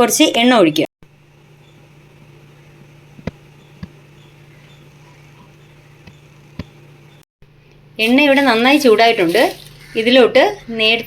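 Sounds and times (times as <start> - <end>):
oil heating with hum and hiss: 1.0 - 11.0.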